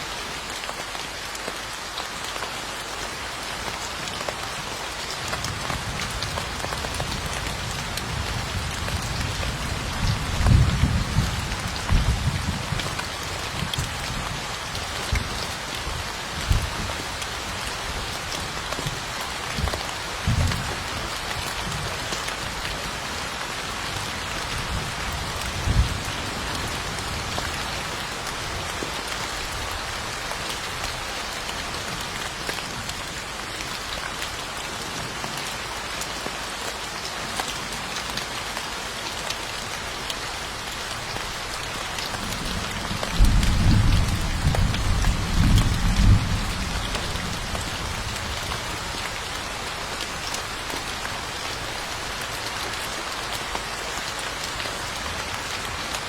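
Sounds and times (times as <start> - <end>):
low thunder rumbles: 42.2 - 48.5.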